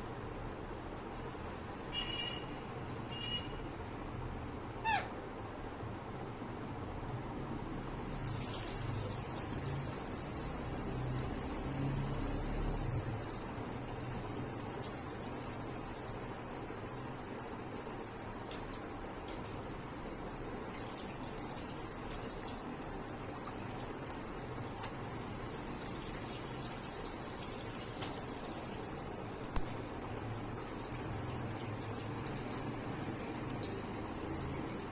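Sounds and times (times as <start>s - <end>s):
sharp ticks and drips: 0.1s - 4.0s, 7.8s - 34.9s
running water splashing: 8.0s - 34.9s.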